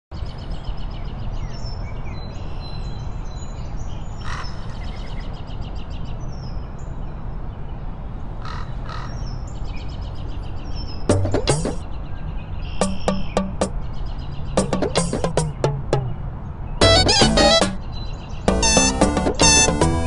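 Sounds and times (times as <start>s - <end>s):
birds chirping and trilling: 8.4s - 18.6s.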